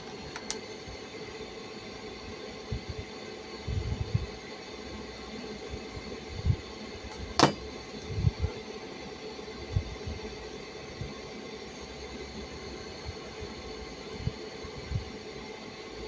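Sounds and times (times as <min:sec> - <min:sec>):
dull handling knocks: 0:07.1 - 0:07.7.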